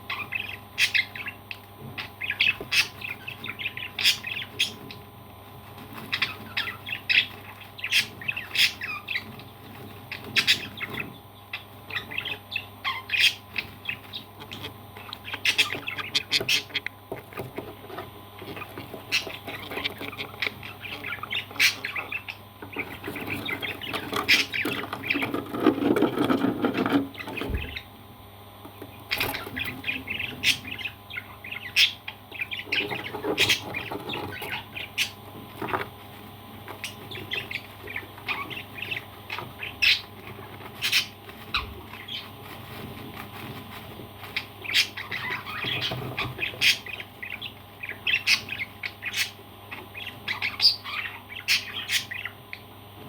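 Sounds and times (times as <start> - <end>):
parrot squawking: 0.1 - 4.8, 6.1 - 9.2, 10.2 - 16.9, 18.5 - 25.2, 29.1 - 35.2, 44.4 - 52.4.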